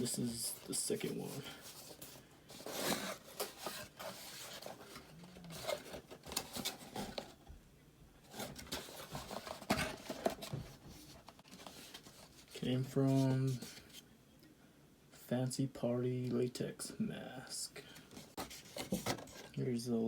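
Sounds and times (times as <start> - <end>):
packaging rustling and tearing: 0.0 - 7.4, 8.3 - 13.9.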